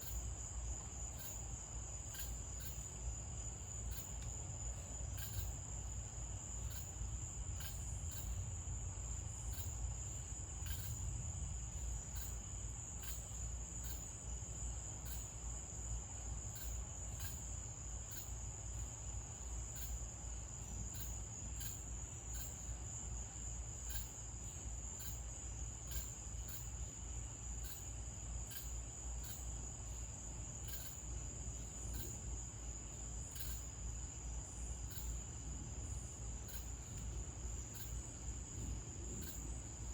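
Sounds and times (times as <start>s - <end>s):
crickets chirring: 0.0s - 39.9s
faint ticks: 3.9s - 4.4s.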